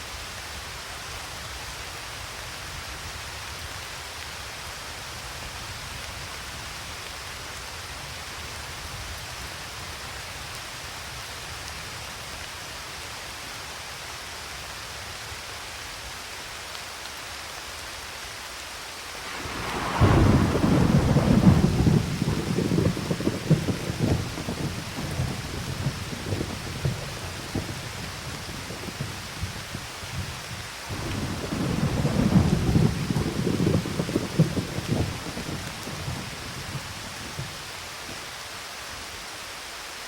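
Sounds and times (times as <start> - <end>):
steady rain falling: 0.0 - 40.0
thunder crack and rumble: 19.1 - 37.7.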